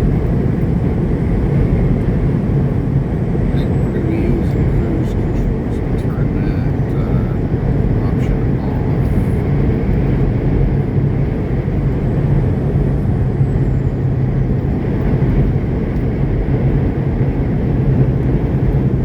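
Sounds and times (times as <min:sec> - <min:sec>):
road noise: 0:00.0 - 0:19.0
truck engine drone: 0:00.0 - 0:19.0.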